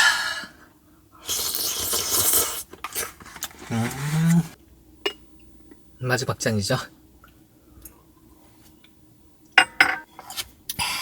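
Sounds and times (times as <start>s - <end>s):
person humming: 3.7s - 4.6s.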